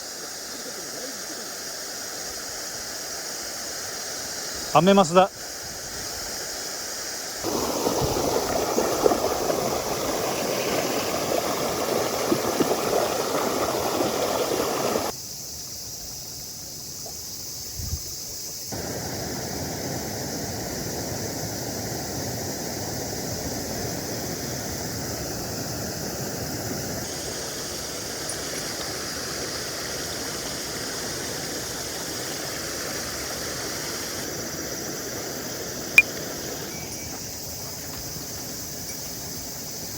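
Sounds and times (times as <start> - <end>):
mountain stream water rushing: 7.4 - 15.1, 18.8 - 39.9.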